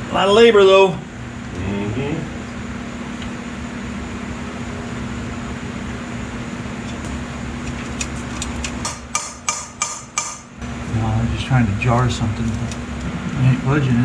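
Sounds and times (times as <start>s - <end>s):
steady hum: 0.0s - 14.0s
hammer blows on metal: 8.8s - 10.9s.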